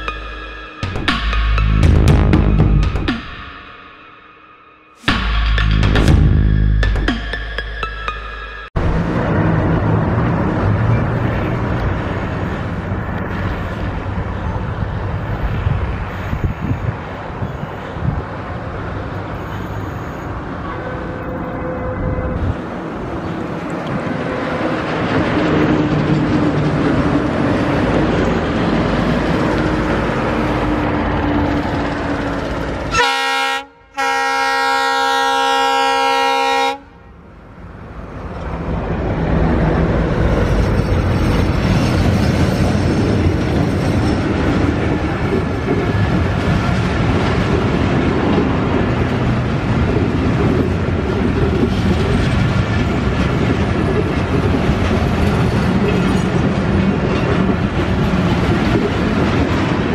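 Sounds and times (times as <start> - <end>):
diesel locomotive engine running: 0.0 - 4.1, 5.0 - 59.9
wheels rumbling and clacking: 5.1 - 33.0, 37.6 - 59.9
multi-tone train horn: 19.4 - 22.6, 32.8 - 37.2.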